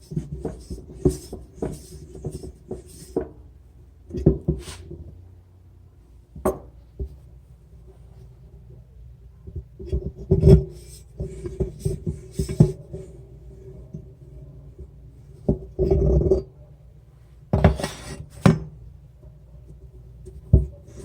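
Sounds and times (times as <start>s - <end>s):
tools scraping and rubbing: 4.6s - 5.0s, 17.6s - 18.6s.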